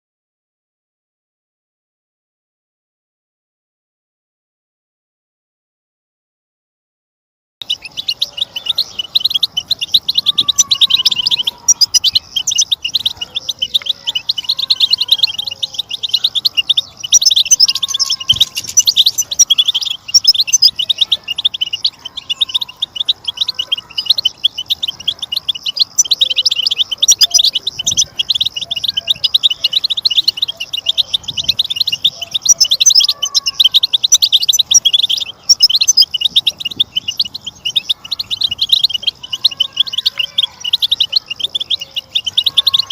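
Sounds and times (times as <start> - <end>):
flock of finches twittering: 7.6 - 42.9.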